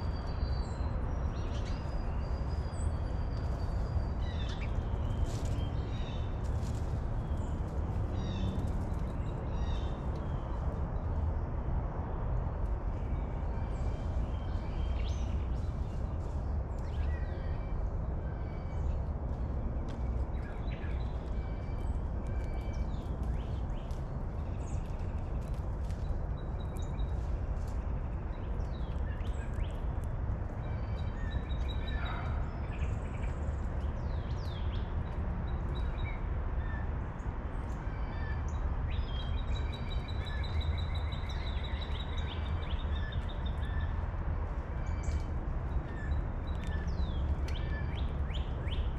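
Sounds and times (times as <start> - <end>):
wild birds chirping: 30.6 - 34.9.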